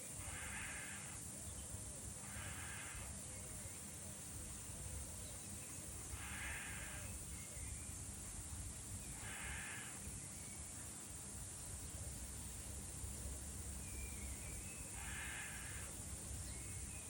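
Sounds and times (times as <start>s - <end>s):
steady high hiss: 0.0s - 17.0s
crow cawing: 0.2s - 1.2s, 2.2s - 3.1s, 6.2s - 7.1s, 9.2s - 10.0s, 15.0s - 15.9s.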